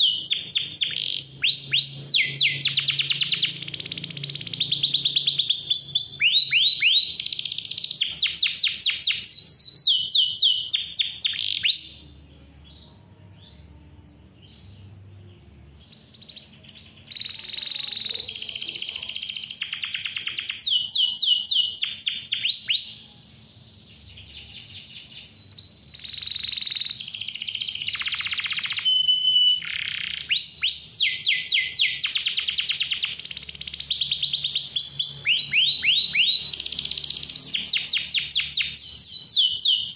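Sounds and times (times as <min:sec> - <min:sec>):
canary singing trills: 0:00.0 - 0:13.8, 0:14.4 - 0:39.9.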